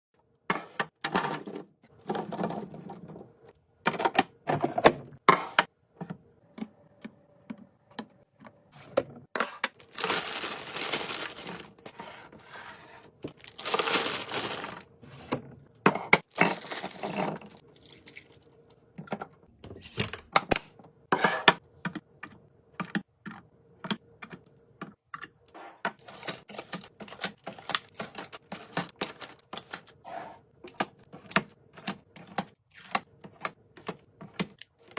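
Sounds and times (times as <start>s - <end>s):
packaging rustling and scraping: 9.4s - 15.2s.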